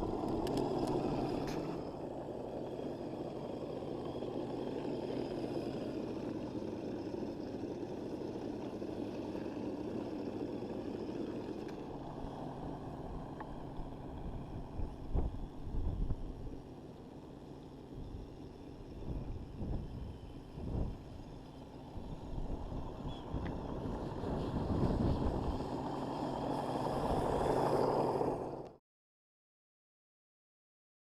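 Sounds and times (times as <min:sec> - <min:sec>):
electric motor and gearbox drone: 0:00.0 - 0:28.8.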